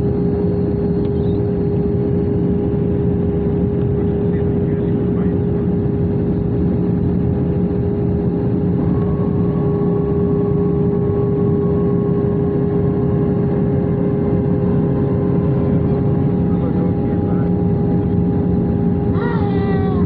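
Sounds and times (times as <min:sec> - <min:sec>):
airliner engines droning in flight: 0:00.0 - 0:20.0
higher engine tone: 0:08.0 - 0:20.0.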